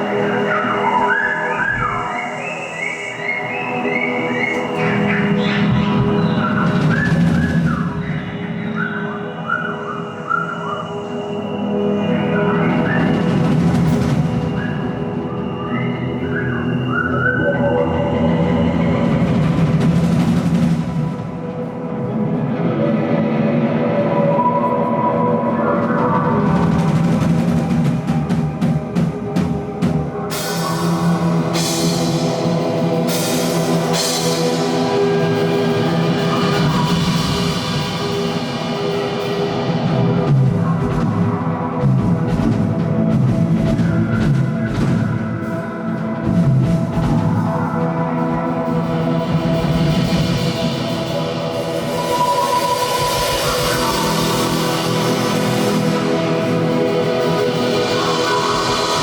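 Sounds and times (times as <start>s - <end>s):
crashing cymbals: 46.6s - 59.0s.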